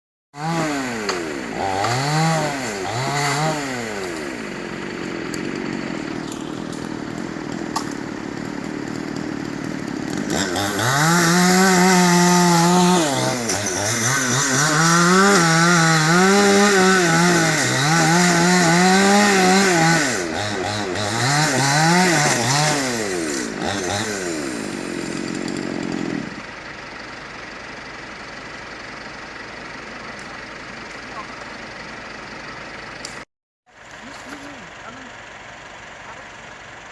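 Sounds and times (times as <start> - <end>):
chainsaw engine revving: 0.4 - 26.5, 33.0 - 35.7.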